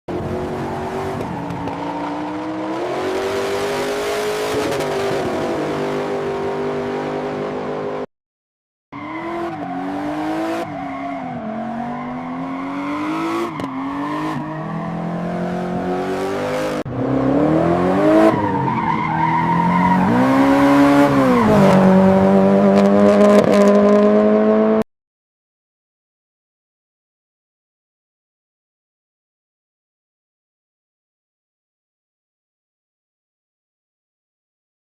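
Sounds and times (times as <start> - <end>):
sports car engines revving: 9.1 - 24.8.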